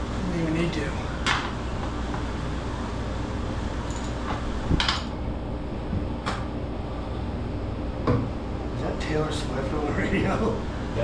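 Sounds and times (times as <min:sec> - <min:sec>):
refrigeration fan hum: 0:00.0 - 0:11.0
metallic clinks of tools: 0:03.9 - 0:04.2.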